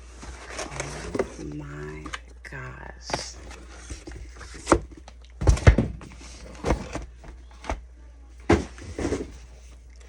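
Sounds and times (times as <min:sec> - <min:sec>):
boxes and packaging knocking: 0:04.0 - 0:07.8, 0:08.5 - 0:09.4.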